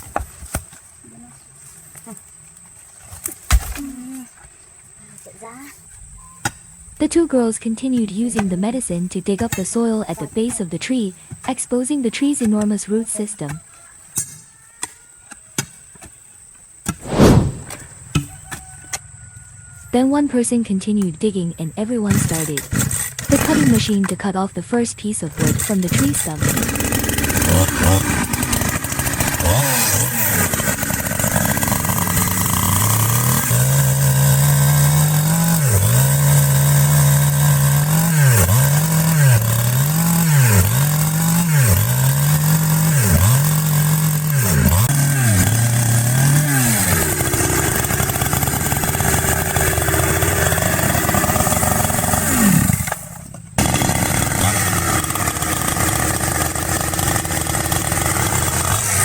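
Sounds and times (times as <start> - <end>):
chainsaw cutting roots: 16.9 - 18.7, 22.1 - 24.2, 25.0 - 59.0.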